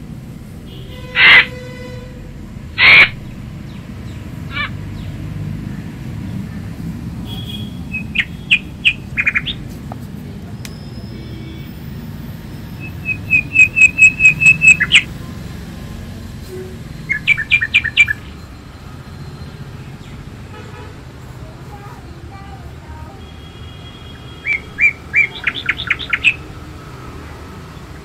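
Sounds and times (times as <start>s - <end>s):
bird chirping: 7.3s - 9.7s, 10.6s - 15.2s, 16.9s - 20.4s, 23.8s - 26.6s.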